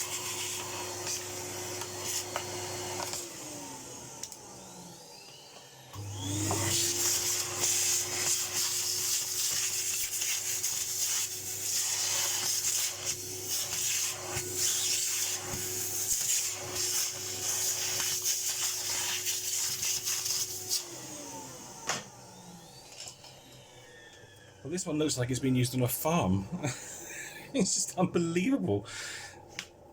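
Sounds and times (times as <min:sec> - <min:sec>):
vacuum cleaner motor whine: 0:00.0 - 0:29.9.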